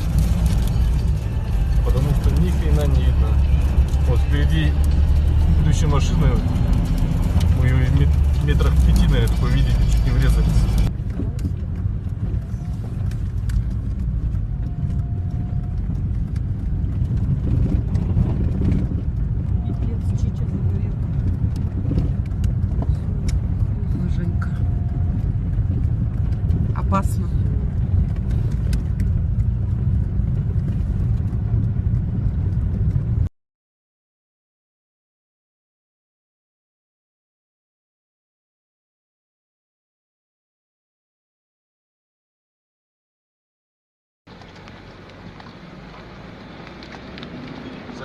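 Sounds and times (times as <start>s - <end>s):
car road and engine rumble: 0.0s - 33.3s, 44.3s - 48.0s.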